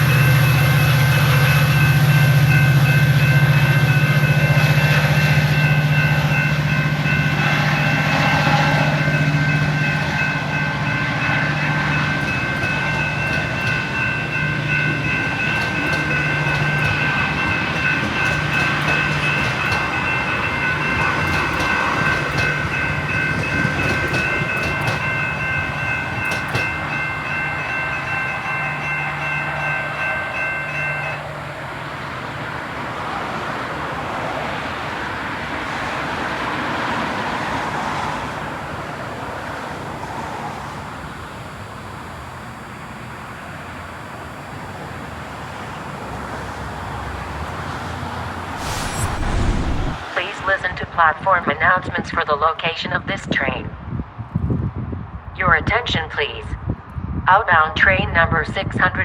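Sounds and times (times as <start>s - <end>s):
steady high ringing: 0.0s - 32.7s, 39.8s - 47.3s
diesel train engine hum: 0.0s - 54.2s
wheels clicking over rail joints: 11.8s - 27.6s.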